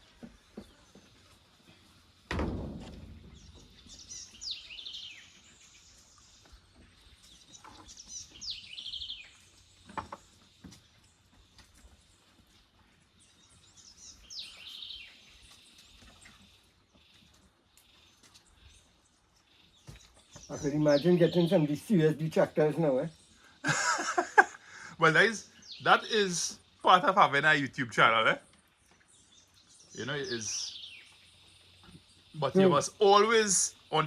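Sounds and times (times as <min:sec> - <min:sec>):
sharp knock: 0:02.3 - 0:04.0
loud thump: 0:02.3 - 0:04.4
songbird trilling: 0:20.3 - 0:23.3, 0:29.1 - 0:34.0.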